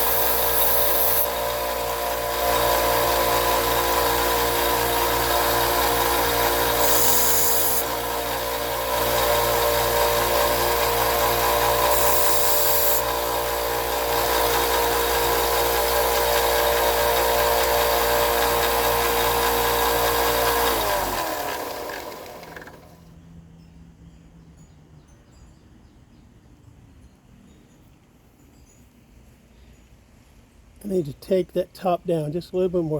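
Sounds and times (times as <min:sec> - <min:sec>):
electric grinder grinding knife blade: 0:00.0 - 0:23.0
grinder motor spinning down: 0:00.0 - 0:23.1.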